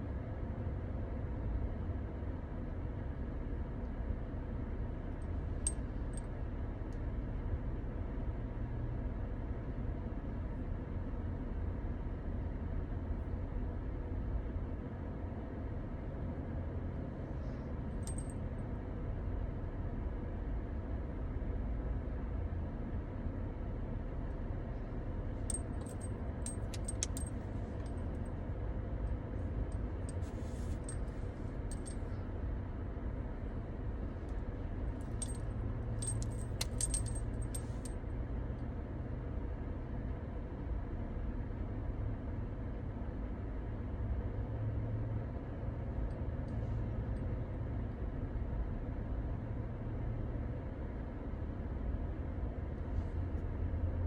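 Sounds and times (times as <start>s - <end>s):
metallic jingling: 25.5s - 27.4s, 35.1s - 37.9s.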